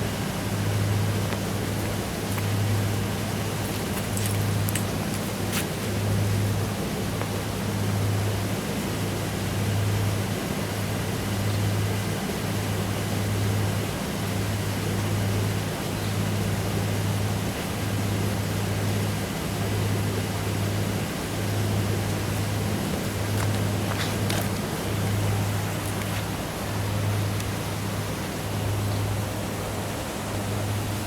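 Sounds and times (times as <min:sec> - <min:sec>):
vehicle engine idling: 0:00.0 - 0:10.1, 0:18.3 - 0:31.0
outdoor noise: 0:00.0 - 0:31.0.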